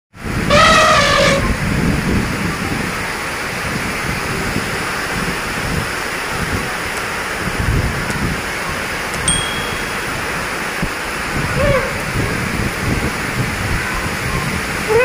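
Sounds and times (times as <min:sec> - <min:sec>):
storm wind: 0:00.2 - 0:09.3, 0:10.0 - 0:15.0
rain: 0:00.2 - 0:15.0
high-pitched call: 0:00.5 - 0:01.4.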